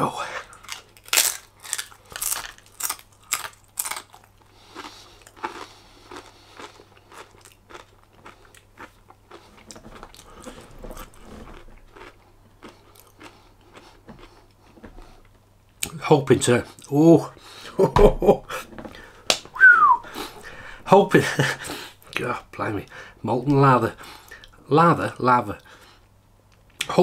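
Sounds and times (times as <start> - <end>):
crunching and chewing crisp food: 0.2 - 17.6.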